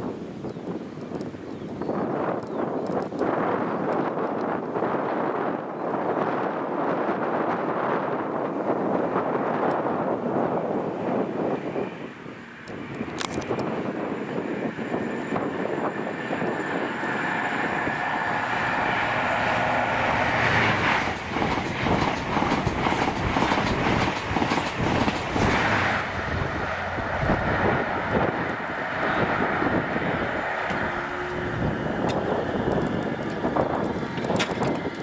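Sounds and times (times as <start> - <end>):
high-speed train rushing past: 4.8 - 35.0
wheels clattering on rails: 12.9 - 35.0.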